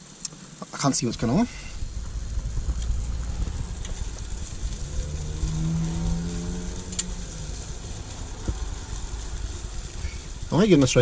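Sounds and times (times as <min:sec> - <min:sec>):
car engine rumbling: 0:00.1 - 0:11.0
vehicle passing by: 0:01.0 - 0:11.0.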